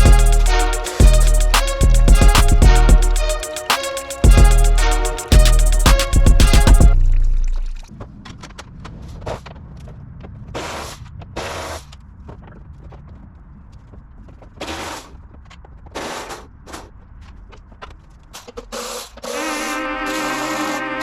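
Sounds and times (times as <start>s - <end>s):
music: 0.0s - 7.6s, 19.6s - 21.0s
low rumble: 4.3s - 7.9s.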